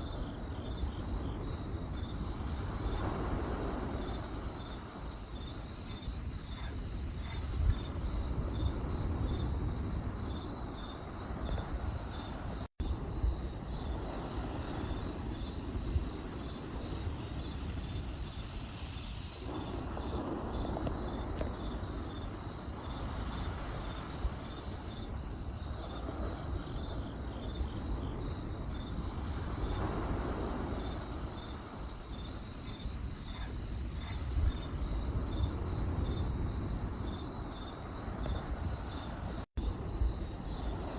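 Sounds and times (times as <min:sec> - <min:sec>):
crackling campfire: 0:00.0 - 0:40.9
crickets chirping: 0:00.0 - 0:40.9
fire pops: 0:19.4 - 0:22.1.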